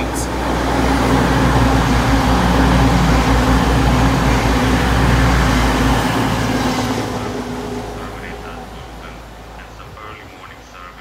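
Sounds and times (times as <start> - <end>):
diesel engines humming: 0.0 - 11.0
wheels rumbling on rail: 0.0 - 11.0.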